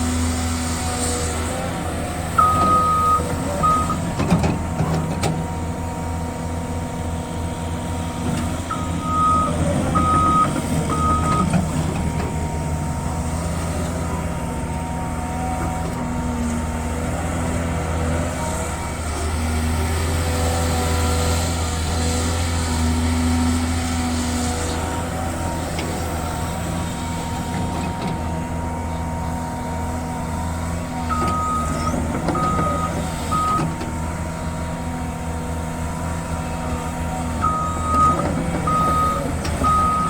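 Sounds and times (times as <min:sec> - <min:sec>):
excavator diesel engine running: 0:00.0 - 0:40.0
backup alarm beeping: 0:02.4 - 0:04.0, 0:08.7 - 0:11.6, 0:37.4 - 0:40.0.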